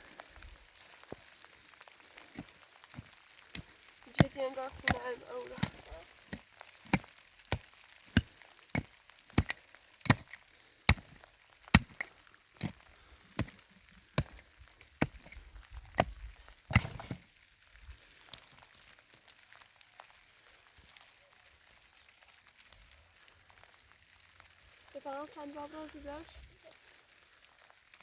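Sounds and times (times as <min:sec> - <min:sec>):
hand tool chopping: 0:02.4 - 0:07.6, 0:08.2 - 0:12.8, 0:13.4 - 0:13.6, 0:14.2 - 0:14.4, 0:15.0 - 0:15.4, 0:16.0 - 0:17.2.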